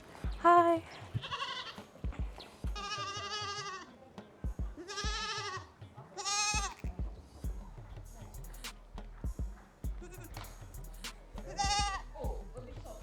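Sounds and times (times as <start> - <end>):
goats bleating: 0.3 - 1.9, 2.7 - 3.9, 4.7 - 6.9, 11.5 - 12.4.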